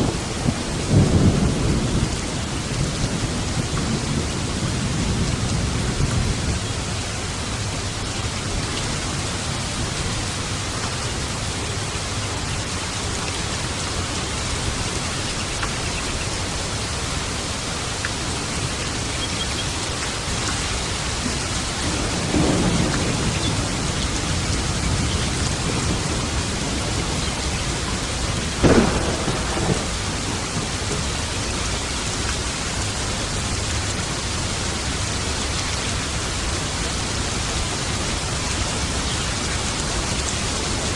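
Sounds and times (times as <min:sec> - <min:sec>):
thunder rumbling: 0:00.0 - 0:07.8, 0:21.0 - 0:34.4
steady rain: 0:00.0 - 0:40.9
sharp thunderclap: 0:21.8 - 0:31.7.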